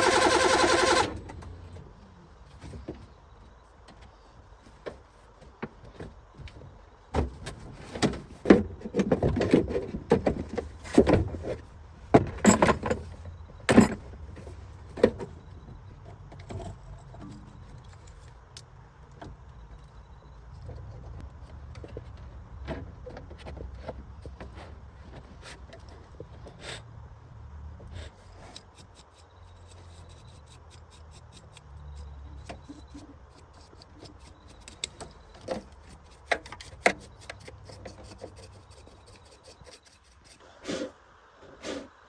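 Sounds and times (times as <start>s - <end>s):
knocks clanks and rattles: 4.8s - 18.5s.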